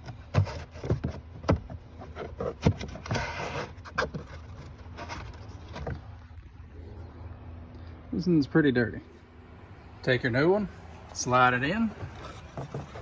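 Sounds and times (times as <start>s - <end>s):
scraping rustle: 0.0s - 6.5s, 11.8s - 13.0s
low steady hum: 0.0s - 13.0s.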